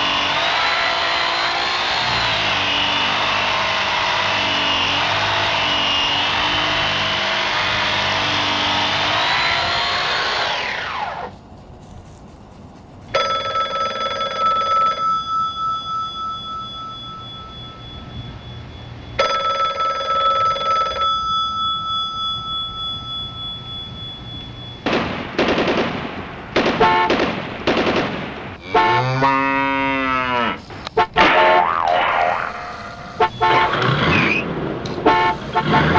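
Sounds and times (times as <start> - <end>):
bell-like rings: 13.2 - 24.9
warbling pitch-bending sound: 31.2 - 34.7.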